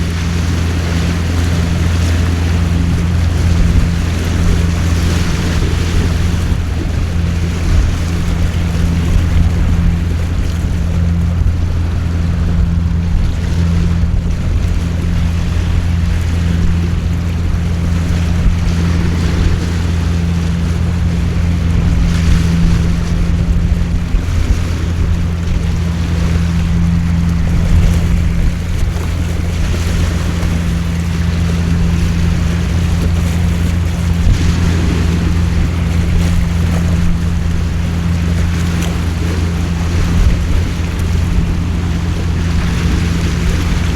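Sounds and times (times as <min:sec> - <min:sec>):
low hum: 0:00.0 - 0:43.9.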